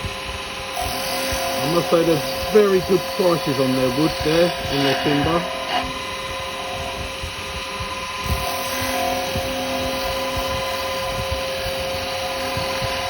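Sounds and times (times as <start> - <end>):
wood lathe whining: 0.0 - 13.0
chisel scraping wood: 1.2 - 7.0.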